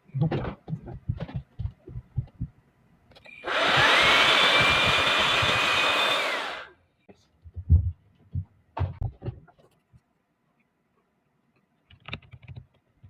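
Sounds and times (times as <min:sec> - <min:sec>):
electric cleaner motor whine: 0:03.4 - 0:06.7.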